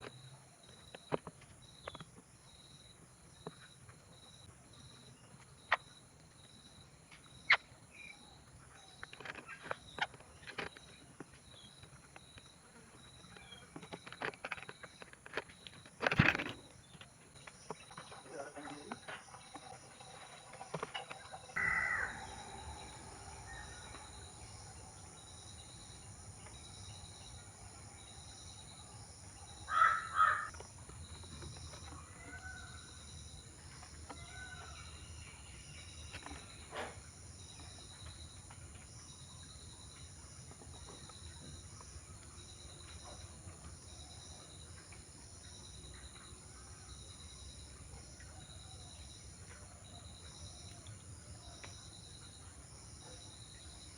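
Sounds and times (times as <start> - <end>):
bird calls: 7.1 - 53.9
pulsing insect chorus: 9.0 - 47.8.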